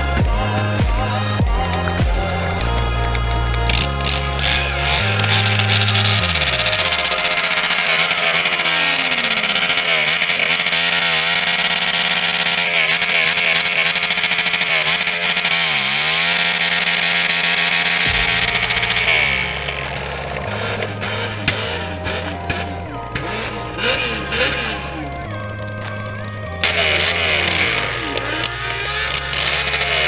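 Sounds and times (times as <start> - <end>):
motorcycle engines revving: 0.0 - 30.0
music bass line: 0.0 - 30.0.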